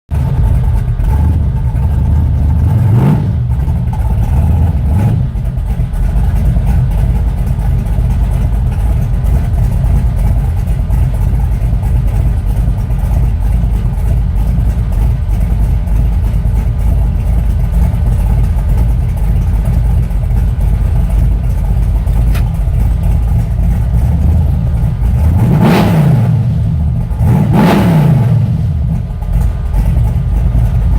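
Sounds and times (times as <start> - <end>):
vee eight engine idling and revving: 0.1 - 30.9.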